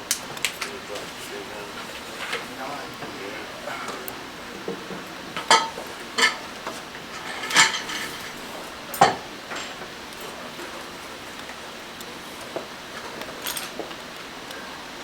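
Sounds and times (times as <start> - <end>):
small metal tools clinking: 13.4 - 13.8.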